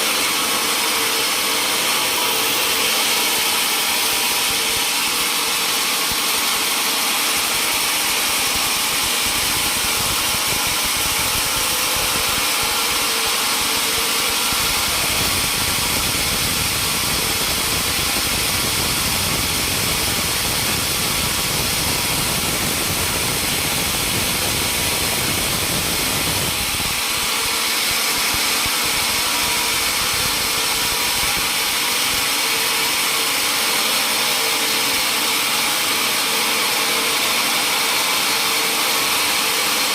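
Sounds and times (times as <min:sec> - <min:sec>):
sawmill machinery hiss and hum: 0:00.0 - 0:39.9.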